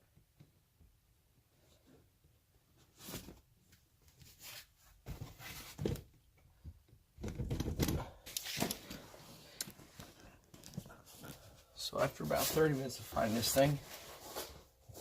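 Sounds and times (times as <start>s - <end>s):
rustling and scraping of car seat: 8.5s - 15.0s.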